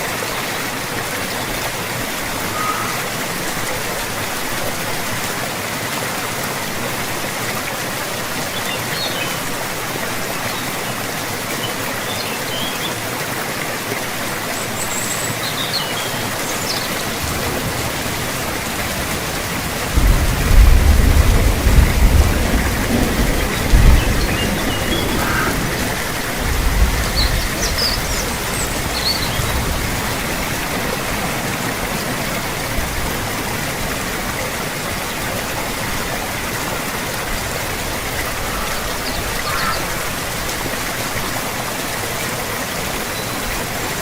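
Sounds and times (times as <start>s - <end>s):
heavy rain hissing: 0.0s - 44.0s
thunder rumbling: 17.1s - 33.2s.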